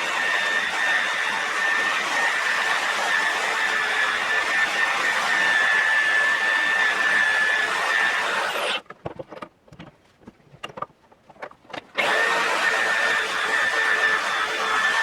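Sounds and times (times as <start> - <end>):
electric power tool whining: 0.0 - 8.9, 11.9 - 15.0.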